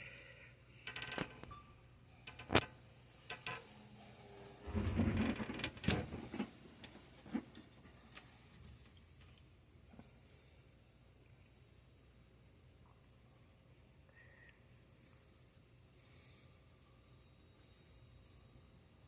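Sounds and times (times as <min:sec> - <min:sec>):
rustling and bumping: 0:04.6 - 0:07.7.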